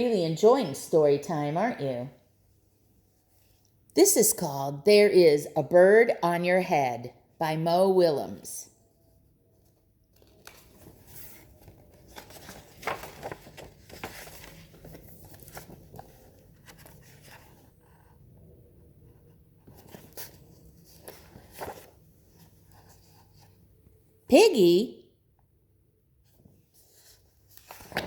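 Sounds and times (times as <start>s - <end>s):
book pages turning: 9.5s - 18.2s, 19.6s - 23.6s, 26.3s - 28.0s.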